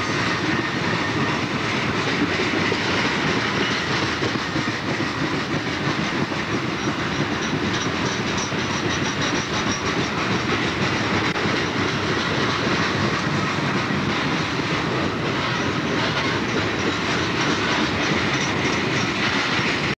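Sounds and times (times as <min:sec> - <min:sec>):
freight train rumble: 0:00.0 - 0:20.0
steel wheels clattering on rails: 0:00.0 - 0:20.0.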